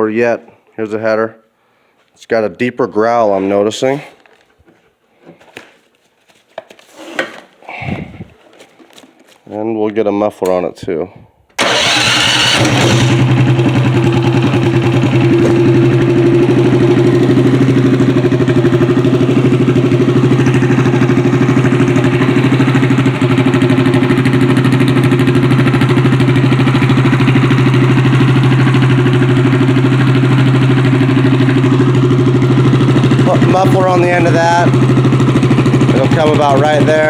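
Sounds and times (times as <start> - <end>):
unmuffled small engine idling: 11.6 - 37.0.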